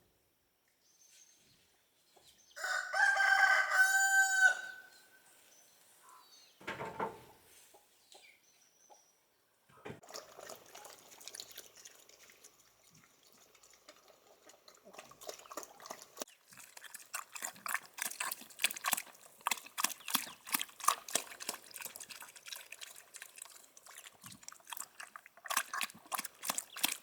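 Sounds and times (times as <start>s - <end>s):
rooster crowing: 2.6s - 5.0s.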